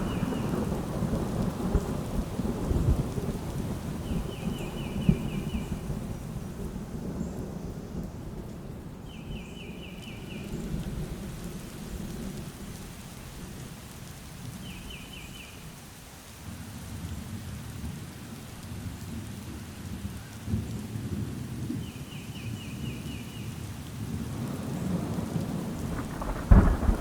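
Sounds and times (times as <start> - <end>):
rolling thunder: 0.0 - 8.8, 24.1 - 27.0
steady rain: 0.0 - 27.0.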